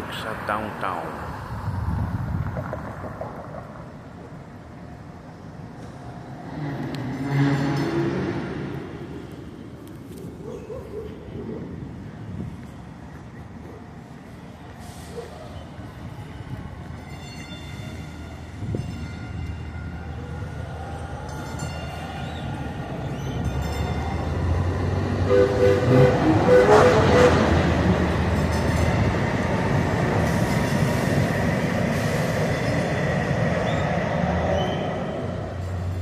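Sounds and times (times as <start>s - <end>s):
train running: 11.9s - 36.0s
train horn tones: 25.1s - 28.0s.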